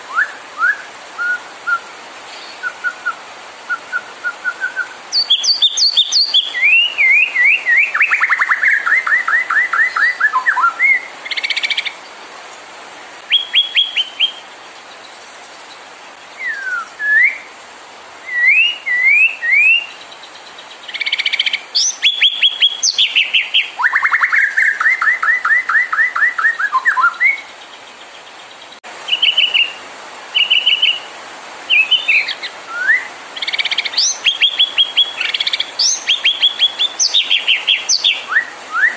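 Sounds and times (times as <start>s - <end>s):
songbird singing varied song: 0.0s - 38.9s.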